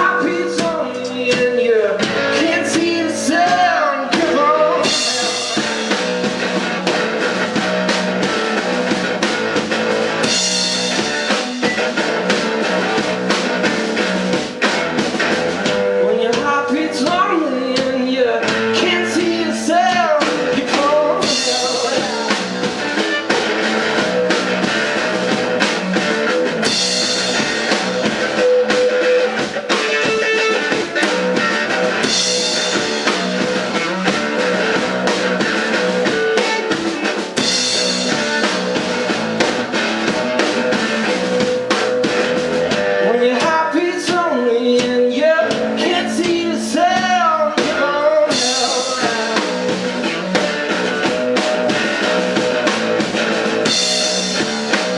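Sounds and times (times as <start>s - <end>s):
person singing: 0.0s - 6.1s, 15.6s - 23.7s, 42.7s - 50.6s
live rock band playing: 0.0s - 54.9s.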